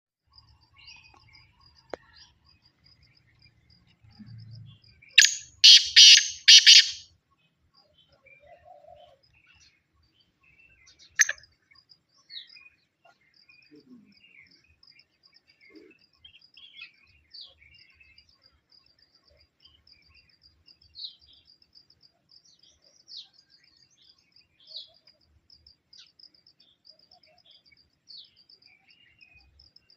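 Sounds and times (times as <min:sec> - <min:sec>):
faint high chirping: 0:00.2 - 0:29.9
bird screeching: 0:05.2 - 0:07.0.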